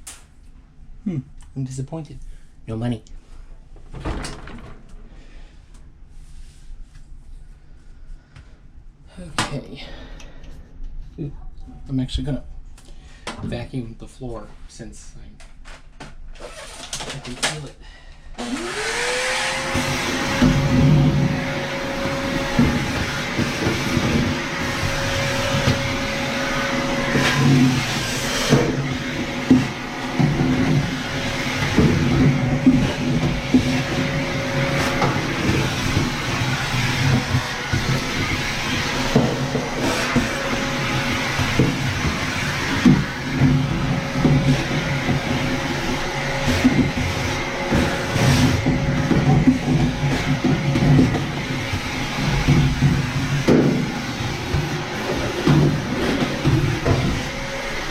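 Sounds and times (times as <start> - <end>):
vacuum cleaner running: 18.4 - 57.9.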